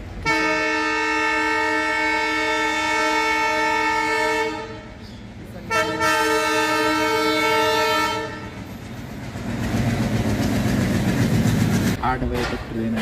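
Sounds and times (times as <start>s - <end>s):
train rumbling on track: 0.0s - 13.0s
train horn blast: 0.2s - 8.7s
wheels clacking over rail joints: 8.2s - 13.0s.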